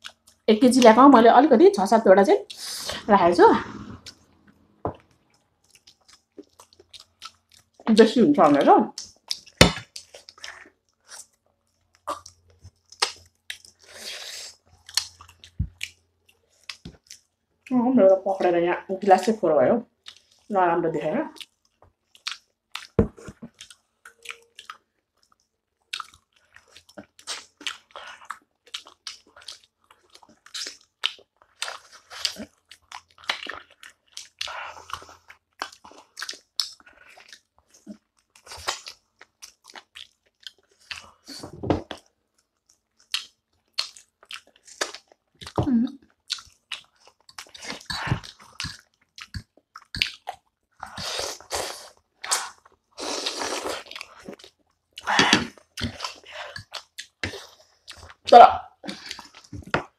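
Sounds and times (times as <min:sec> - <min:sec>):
wet chewing and crunching: 0:00.0 - 0:00.9, 0:04.0 - 0:17.7, 0:20.0 - 0:20.5, 0:21.4 - 0:59.9
noodle slurp: 0:50.8 - 0:54.0.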